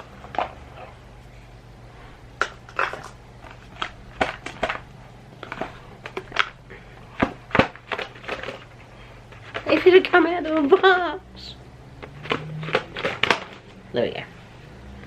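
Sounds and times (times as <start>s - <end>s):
low steady hum: 0.0s - 15.0s
cardboard and plastic rustling: 2.5s - 11.1s, 12.0s - 13.8s.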